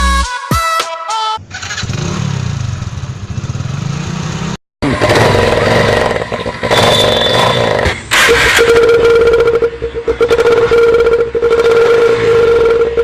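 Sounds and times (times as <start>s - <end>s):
motorcycle engine running: 1.4s - 8.1s.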